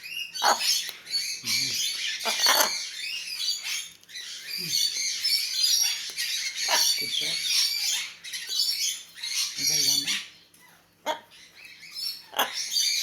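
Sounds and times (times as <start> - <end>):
macaw squawking: 0.3 - 3.8, 5.6 - 8.6, 12.3 - 13.0.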